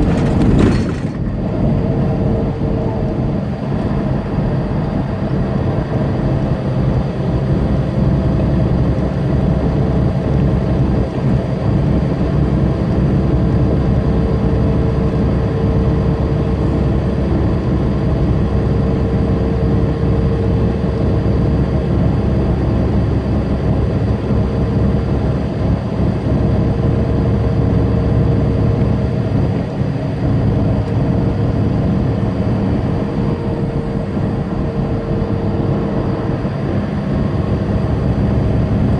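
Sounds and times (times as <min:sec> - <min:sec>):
tyre and road noise: 0:00.0 - 0:07.2
diesel truck engine running: 0:00.0 - 0:38.9.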